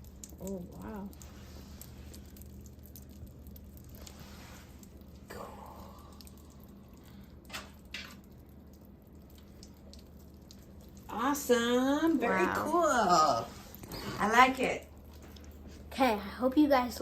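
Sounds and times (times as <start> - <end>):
soft drip-like clicks: 0.0 - 16.6
foam fizzing and popping: 0.0 - 17.0.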